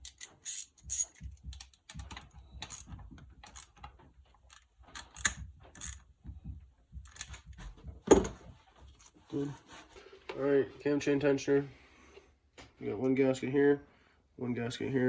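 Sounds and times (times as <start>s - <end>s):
hand ratchet clicking: 0.0s - 3.9s, 4.5s - 6.0s.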